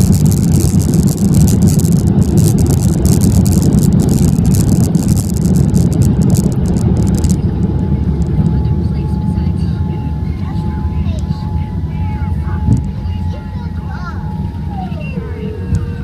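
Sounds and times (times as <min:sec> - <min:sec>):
crackling hiss: 0:00.0 - 0:07.4
airliner cabin rumble: 0:00.0 - 0:16.0.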